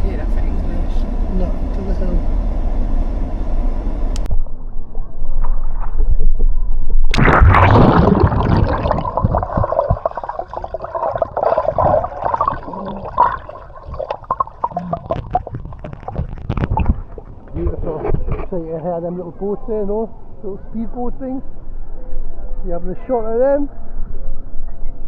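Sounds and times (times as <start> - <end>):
wind rumble on microphone: 13.6 - 18.7.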